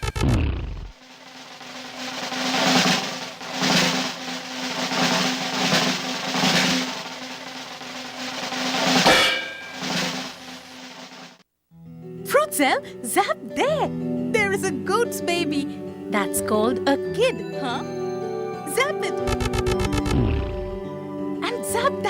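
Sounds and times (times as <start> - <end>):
rolling snare drum: 0.9 - 11.4.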